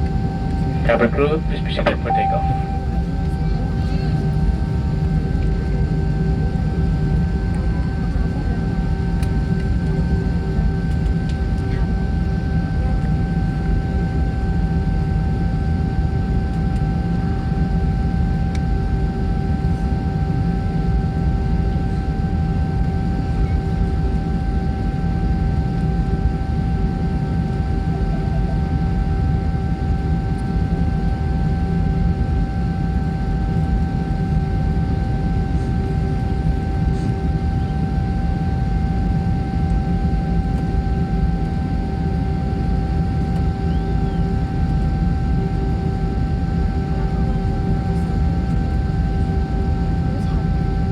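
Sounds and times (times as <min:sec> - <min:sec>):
airliner cabin rumble: 0:00.0 - 0:06.9
jet engine whine: 0:00.0 - 0:50.9.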